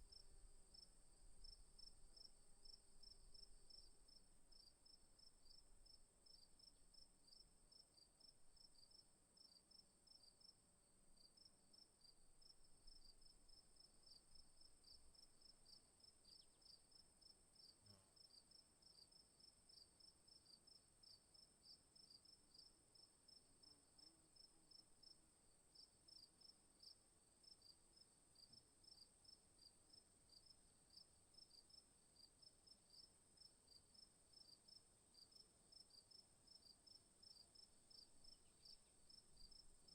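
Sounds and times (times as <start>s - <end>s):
insects chirping: 36.5s - 39.9s.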